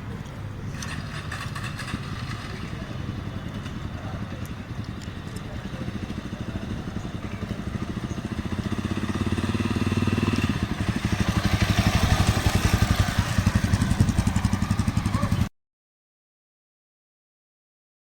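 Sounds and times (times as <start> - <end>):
motorcycle engine running: 0.5 - 15.5.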